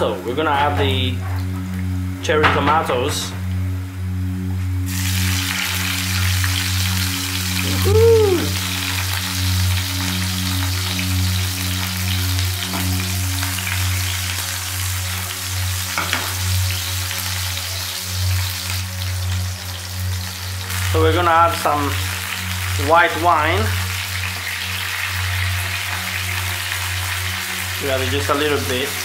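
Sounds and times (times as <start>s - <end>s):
low hum: 0.0s - 17.1s
rising and falling pitched sound: 4.7s - 9.2s
tomatoes sizzling in a frying pan: 4.8s - 29.0s.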